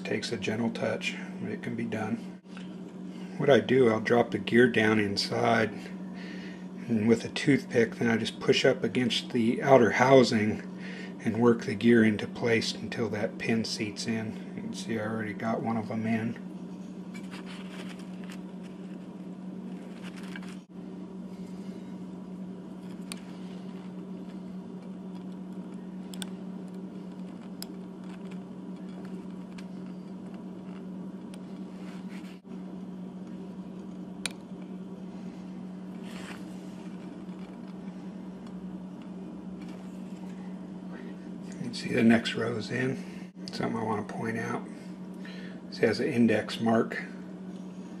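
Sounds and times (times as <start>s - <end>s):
steady low hum: 0.0s - 48.0s
faint scratching: 22.8s - 32.4s, 35.9s - 38.2s.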